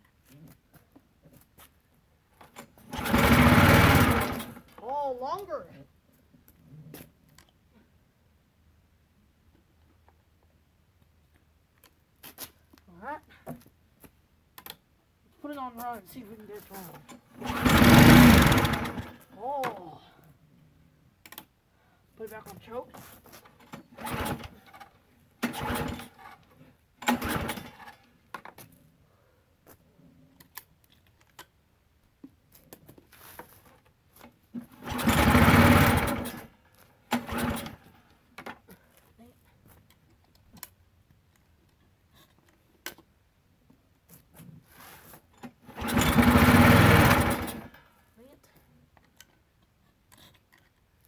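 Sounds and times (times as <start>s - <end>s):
small engine pull-start cranking: 2.4s - 4.8s, 16.7s - 19.8s, 23.0s - 28.6s, 34.6s - 39.0s, 45.0s - 48.0s.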